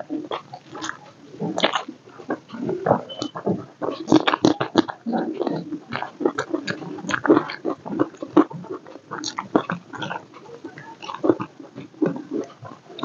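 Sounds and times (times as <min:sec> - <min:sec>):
open-mouth chewing smacks: 0:00.0 - 0:13.0.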